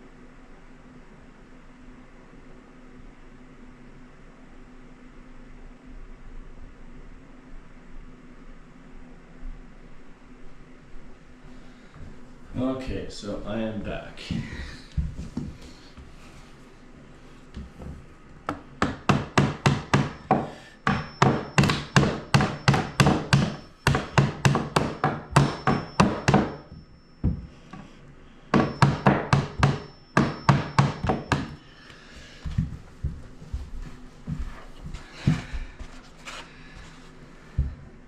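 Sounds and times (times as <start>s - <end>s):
hammer striking nails into wood: 18.5s - 27.4s, 28.5s - 31.6s.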